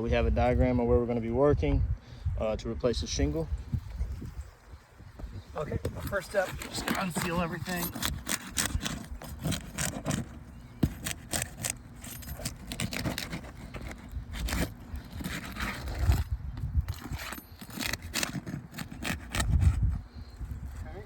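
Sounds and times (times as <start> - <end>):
roof shingles cracking and scraping: 6.1 - 11.8, 12.4 - 16.1, 17.6 - 19.5.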